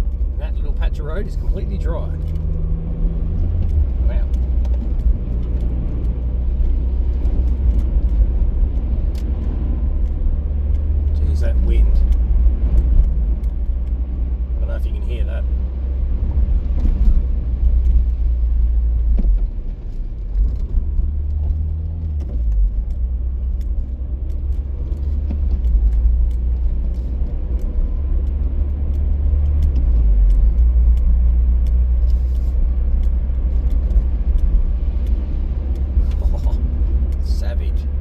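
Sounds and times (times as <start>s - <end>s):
road noise: 0.0s - 38.0s
strong wind buffeting a car: 0.0s - 38.0s
light ticks: 0.1s - 14.3s, 16.8s - 38.0s.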